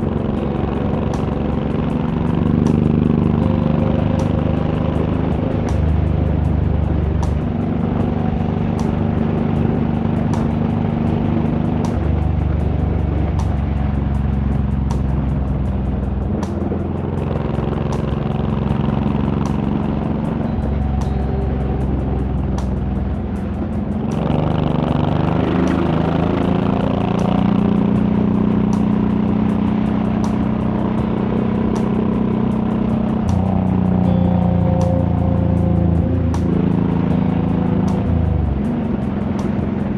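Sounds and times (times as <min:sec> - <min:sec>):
background music with steady beat: 0:00.0 - 0:39.9
motorcycle engine running: 0:00.0 - 0:39.9.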